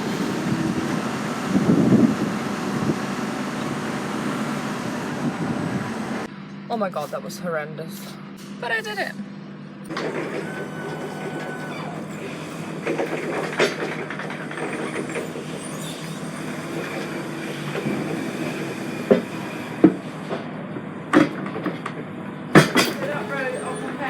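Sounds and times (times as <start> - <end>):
lorry engine hum in cab: 0.0 - 24.0
sharp knocks and rattles: 9.9 - 18.2, 19.1 - 23.3.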